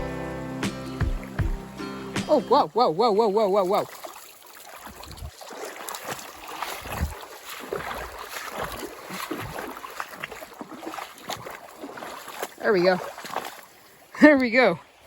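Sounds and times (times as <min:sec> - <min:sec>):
low thumps: 0:00.0 - 0:02.5
water splashing and sloshing: 0:01.0 - 0:15.0.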